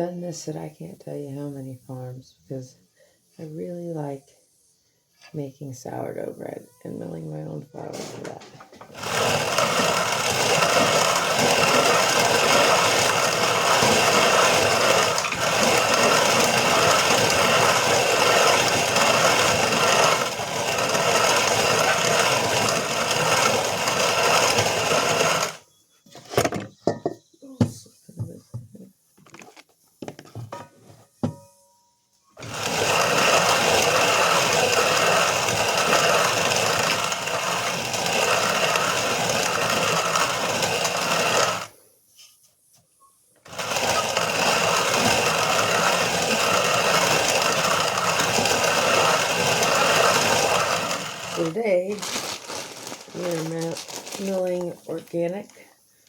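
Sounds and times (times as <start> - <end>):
hand grain mill grinding: 7.8 - 25.6, 32.4 - 41.7, 43.4 - 55.5.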